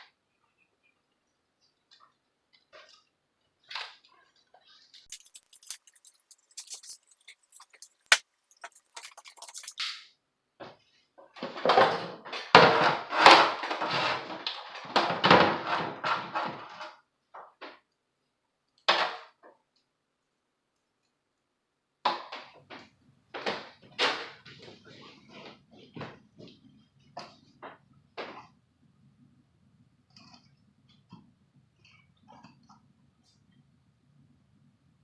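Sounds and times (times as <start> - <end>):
small metal parts clicking: 5.1 - 9.9.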